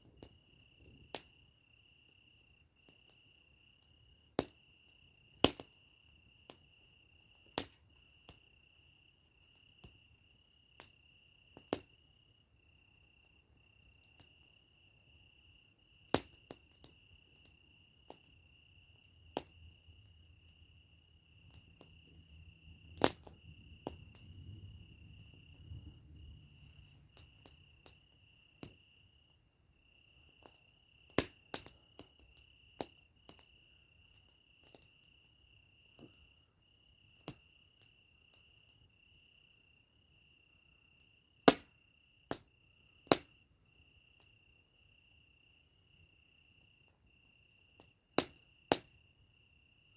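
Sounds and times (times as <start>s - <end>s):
burning wood popping: 0.0s - 1.5s, 2.1s - 8.5s, 9.4s - 12.0s, 15.8s - 29.0s, 30.2s - 35.3s, 41.4s - 41.7s, 42.3s - 43.4s, 47.8s - 48.9s
campfire crackling: 0.0s - 49.9s
cricket chirping: 0.0s - 49.9s.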